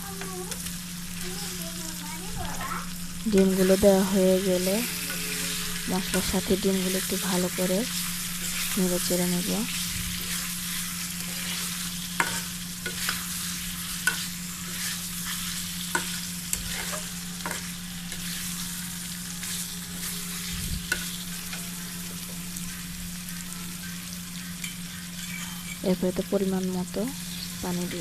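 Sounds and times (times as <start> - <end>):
eggs sizzling in a pan: 0.0 - 28.0
spatula scraping and knocking pan: 10.1 - 18.4.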